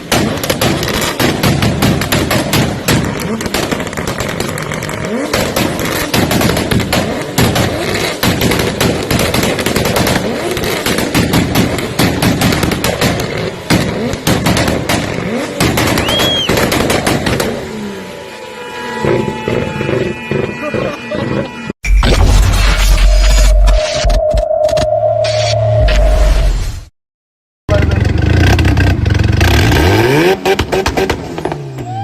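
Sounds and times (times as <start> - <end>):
exhaust popping and crackling: 0.0 - 17.9
car exhaust revving: 0.0 - 18.2.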